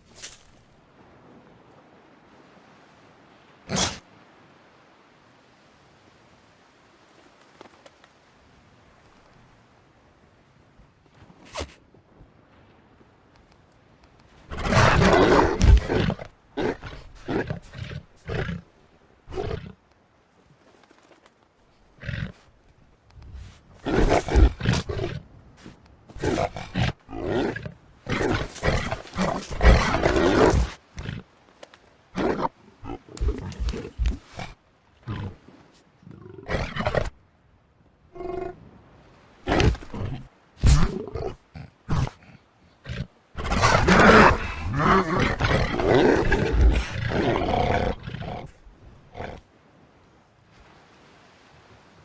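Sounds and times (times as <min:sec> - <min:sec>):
elephant seals roaring and grunting: 0:14.5 - 0:18.7, 0:23.4 - 0:25.2, 0:26.1 - 0:31.3, 0:32.1 - 0:35.5, 0:39.4 - 0:49.5.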